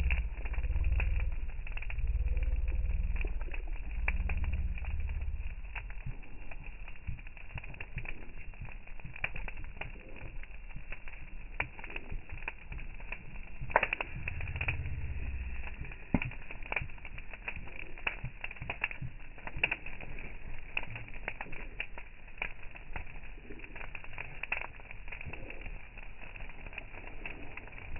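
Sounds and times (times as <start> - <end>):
low rumble: 0.0 - 18.7
fire crackling: 0.0 - 27.9.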